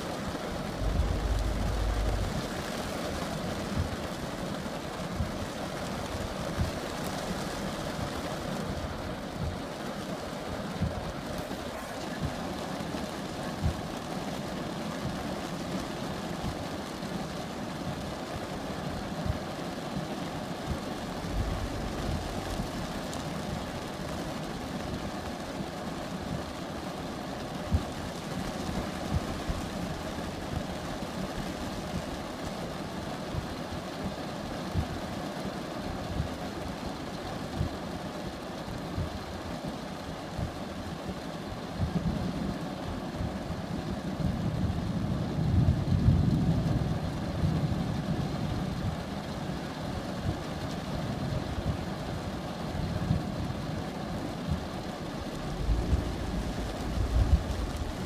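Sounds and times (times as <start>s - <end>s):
rainstorm: 0.0s - 58.0s
low rumble: 0.5s - 3.2s, 21.1s - 23.8s, 55.2s - 58.0s
low thuds: 0.7s - 2.7s, 21.3s - 22.9s, 55.4s - 58.0s.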